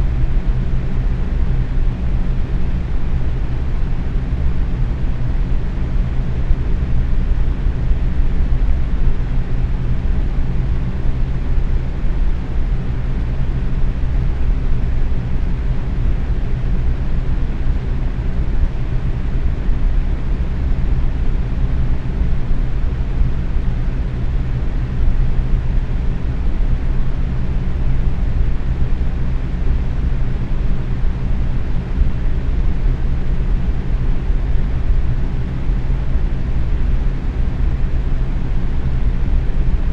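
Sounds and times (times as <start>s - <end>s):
box fan running: 0.0s - 39.9s.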